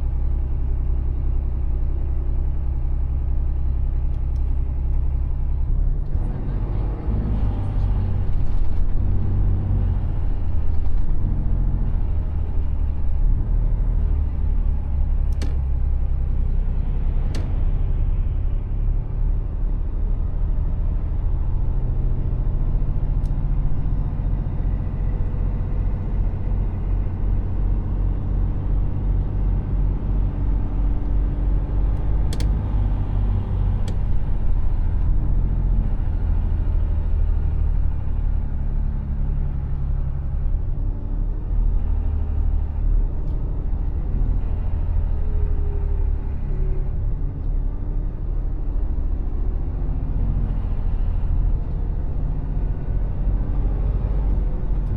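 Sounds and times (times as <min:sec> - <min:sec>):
road noise: 0:00.0 - 0:54.9
truck diesel engine: 0:00.0 - 0:54.9
sharp click: 0:32.3 - 0:32.8.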